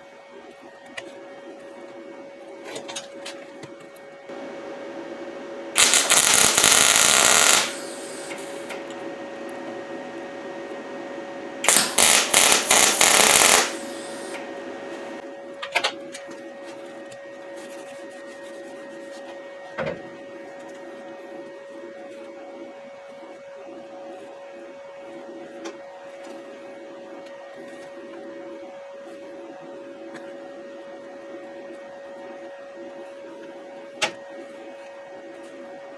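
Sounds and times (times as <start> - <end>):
steady hum: 4.0 - 15.6
welding arc crackling: 5.8 - 8.7, 11.6 - 14.4.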